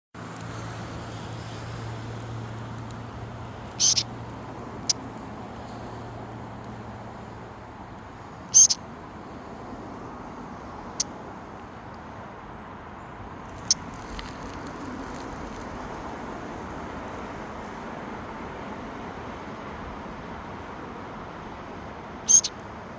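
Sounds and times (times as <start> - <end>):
bird high-pitched calls: 3.7 - 4.1, 4.8 - 5.0, 8.5 - 8.8, 22.3 - 22.6.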